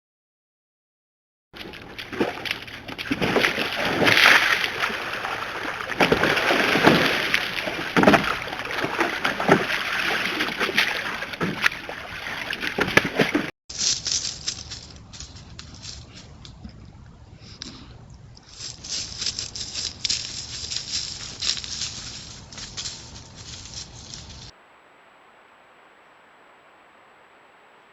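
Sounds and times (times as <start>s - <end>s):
water splashing and sloshing: 1.6s - 13.5s.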